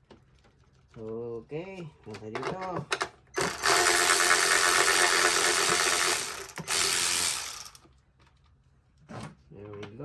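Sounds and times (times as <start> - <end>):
power tool motor whine: 3.4 - 7.8.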